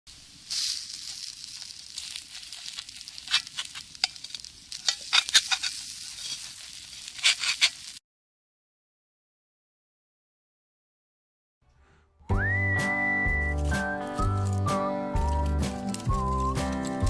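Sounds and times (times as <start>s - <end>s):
food sizzling in a skillet: 0.1s - 8.0s.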